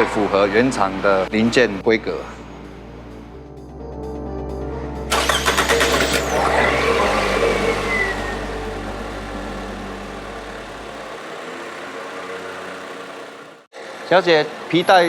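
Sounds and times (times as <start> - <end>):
car engine starting and revving: 5.1 - 15.0.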